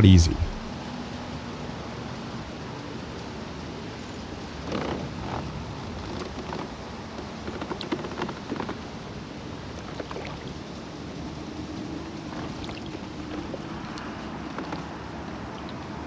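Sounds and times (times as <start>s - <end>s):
small water sounds: 12.3s - 14.8s.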